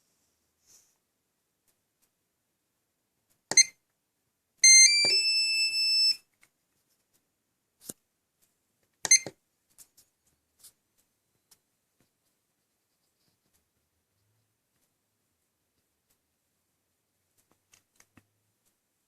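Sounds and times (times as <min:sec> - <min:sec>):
battery charger short beep: 0:04.6 - 0:06.2, 0:09.1 - 0:09.3.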